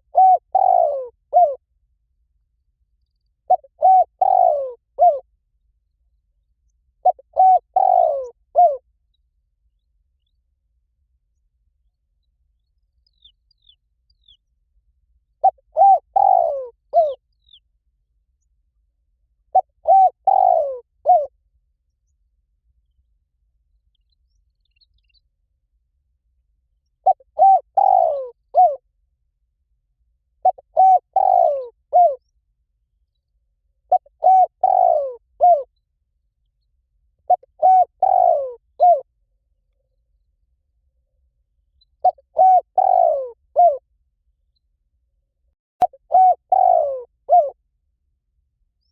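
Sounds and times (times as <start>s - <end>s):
dove cooing: 0.0s - 1.6s, 3.5s - 5.3s, 7.0s - 8.8s, 15.4s - 17.6s, 19.5s - 21.3s, 27.0s - 28.8s, 30.4s - 32.2s, 33.9s - 35.7s, 37.3s - 39.1s, 42.0s - 43.8s, 45.8s - 47.6s
small bird chirping: 11.3s - 14.8s, 15.4s - 18.6s, 19.5s - 25.6s.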